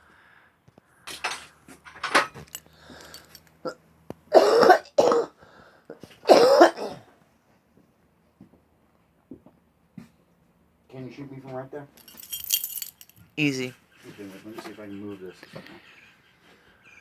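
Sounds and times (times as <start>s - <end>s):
person clearing throat: 4.3s - 5.3s, 6.3s - 7.0s
person coughing: 4.3s - 5.3s, 6.3s - 7.0s.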